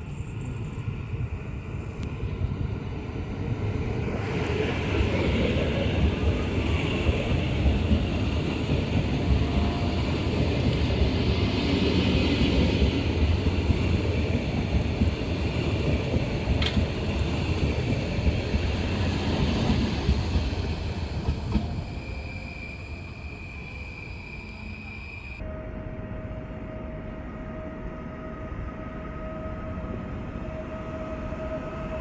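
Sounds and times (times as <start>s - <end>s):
train wheels on rails: 0.0s - 25.4s.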